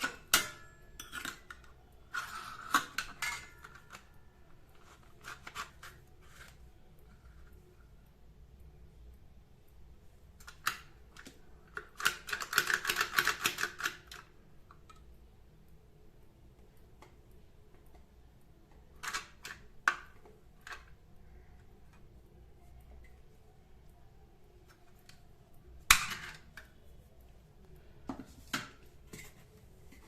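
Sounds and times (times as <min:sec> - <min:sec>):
kitchen utensils clicking and tapping: 0:00.0 - 0:04.1, 0:10.4 - 0:14.2.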